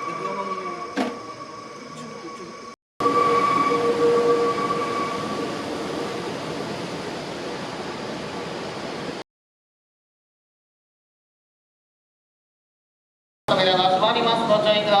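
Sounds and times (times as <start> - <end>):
electric train whine: 0.0 - 9.2
rushing noise: 0.0 - 9.2.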